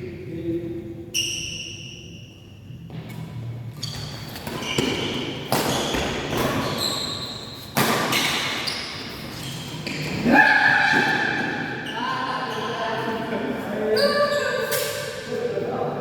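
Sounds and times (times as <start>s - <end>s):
shoe squeaks: 1.1s - 2.8s, 3.8s - 10.2s, 13.9s - 15.1s
racket hitting shuttlecock: 4.3s - 6.8s, 7.7s - 8.6s.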